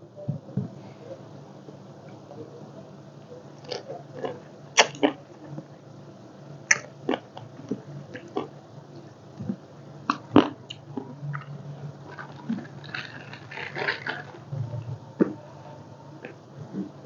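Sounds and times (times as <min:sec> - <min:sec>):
chewing: 0:03.6 - 0:05.6, 0:06.7 - 0:08.5, 0:09.4 - 0:17.0
crab shell cracking: 0:12.0 - 0:14.5.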